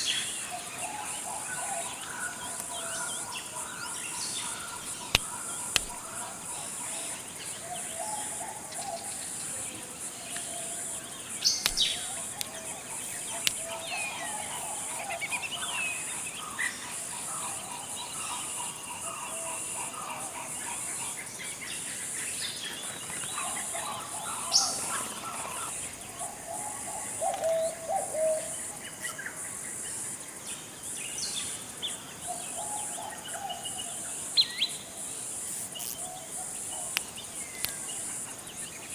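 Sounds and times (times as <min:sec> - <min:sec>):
birds calling and chirping: 0:00.0 - 0:29.2
steady high-pitched hiss: 0:00.0 - 0:38.9
sharp high bird chirps: 0:35.7 - 0:38.0.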